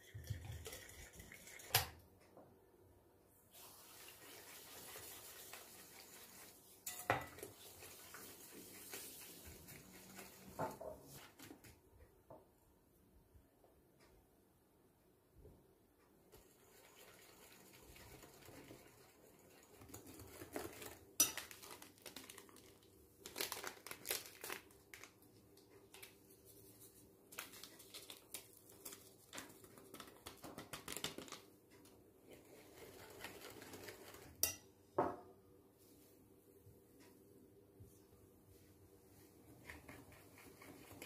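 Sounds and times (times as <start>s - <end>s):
dishes and utensils clinking: 6.9s - 7.5s
crinkling: 19.9s - 34.4s.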